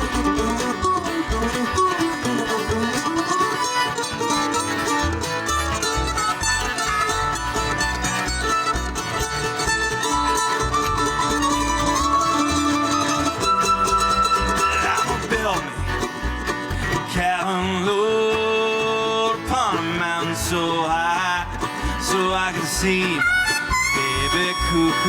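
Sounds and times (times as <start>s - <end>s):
sliding wavering melody notes: 0.0s - 15.2s
bluegrass string band playing: 0.0s - 25.0s.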